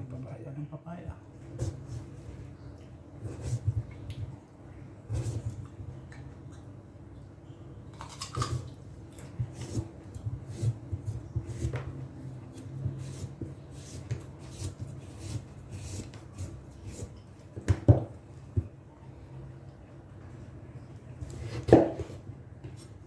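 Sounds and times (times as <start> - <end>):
knife on cutting board: 21.2 - 22.2.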